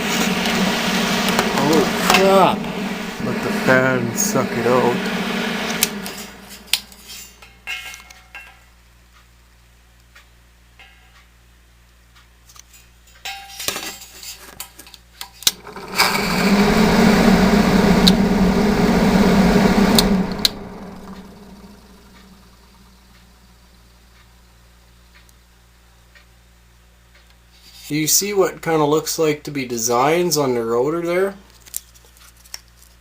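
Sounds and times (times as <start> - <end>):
exhaust fan humming: 0.0 - 8.5, 15.4 - 26.1.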